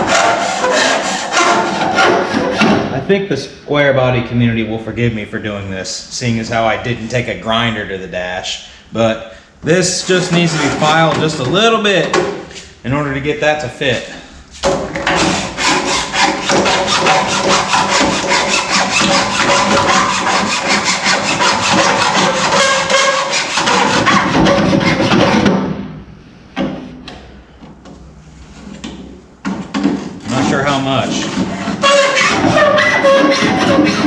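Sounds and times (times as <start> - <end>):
hand file rasping: 0.0 - 2.8, 15.1 - 25.4, 31.3 - 34.0.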